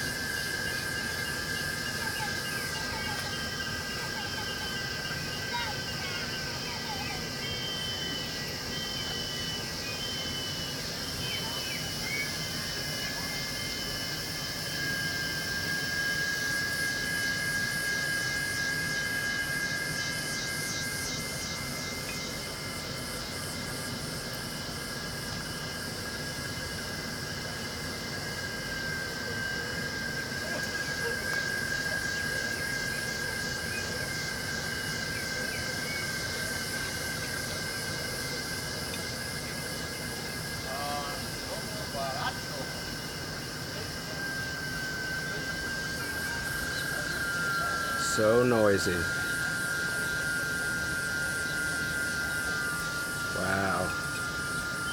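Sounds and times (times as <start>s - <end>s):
high whistling calls: 0.0s - 24.2s, 40.0s - 54.9s
insects buzzing: 0.0s - 54.9s.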